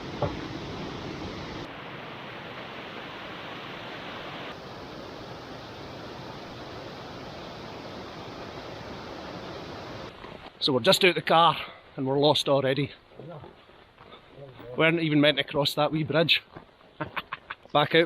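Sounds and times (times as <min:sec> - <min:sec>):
heavy rain: 0:00.0 - 0:10.5
wind: 0:00.0 - 0:18.0.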